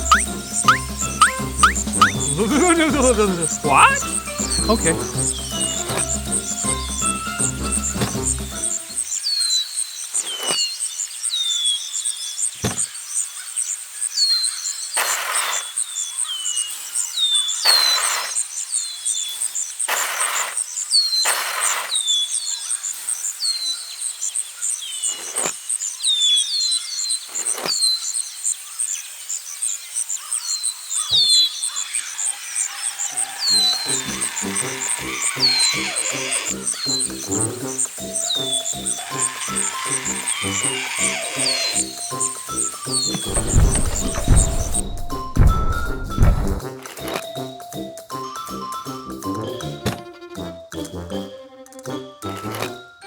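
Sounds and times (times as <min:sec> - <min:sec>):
short high falling chirps: 0:00.0 - 0:05.1
insect drone: 0:28.3 - 0:46.6
rustling swishes: 0:43.0 - 0:46.6.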